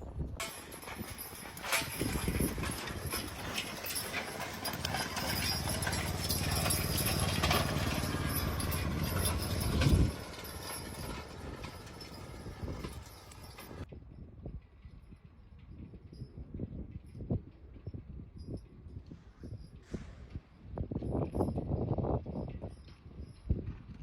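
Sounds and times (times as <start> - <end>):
horse hooves clip-clopping: 0.4 - 13.9
low engine rumble: 0.4 - 13.9.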